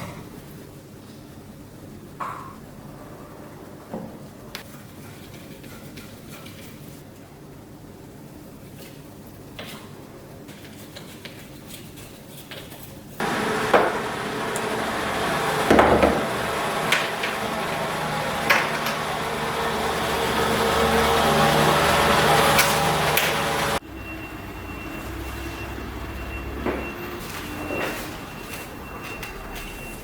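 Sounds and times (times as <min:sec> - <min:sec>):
loud mechanical running noise: 0:13.2 - 0:30.0
sharp knocks: 0:15.4 - 0:17.6.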